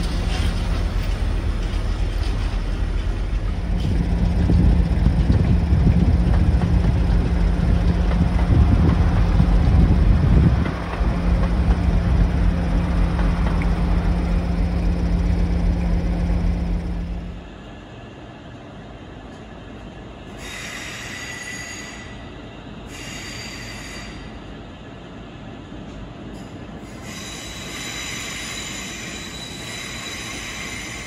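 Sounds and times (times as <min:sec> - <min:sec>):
diesel train engine drone: 0:00.0 - 0:31.0
train wheel squeal: 0:20.4 - 0:24.4, 0:26.4 - 0:31.0.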